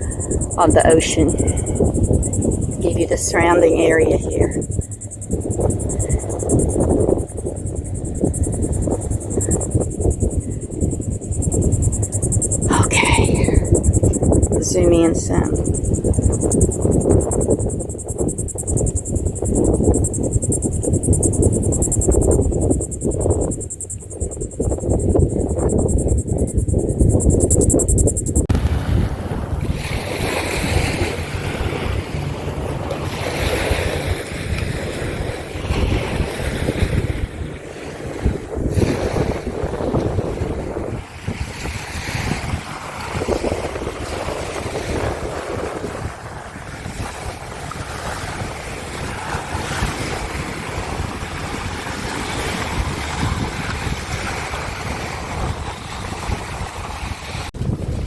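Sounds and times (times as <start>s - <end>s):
ocean surf rushing: 0.0s - 4.7s, 11.8s - 13.9s, 14.5s - 15.7s, 28.5s - 39.9s
wind buffeting microphone: 0.0s - 58.0s.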